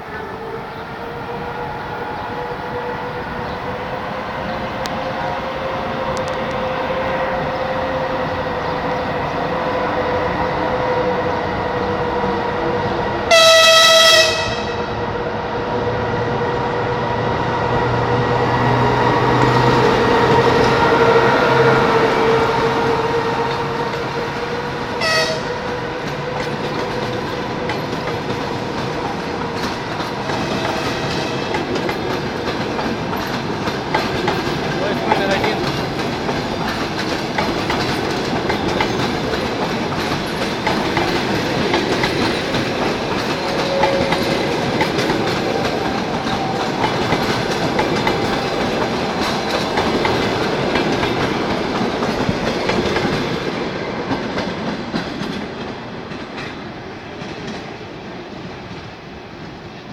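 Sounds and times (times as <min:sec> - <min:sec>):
electric locomotive rumble and hum: 0:00.0 - 0:57.6
train horn blast: 0:13.3 - 0:15.2, 0:19.9 - 0:25.9, 0:30.4 - 0:31.6, 0:43.4 - 0:44.7
wheels clacking on rail joints: 0:21.6 - 0:56.6.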